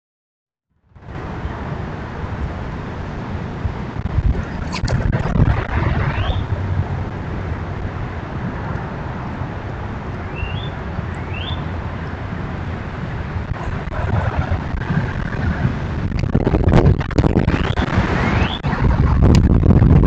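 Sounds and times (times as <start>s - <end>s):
low outdoor rumble: 0.8s - 20.0s
bird rising calls: 4.6s - 6.6s, 10.3s - 11.7s.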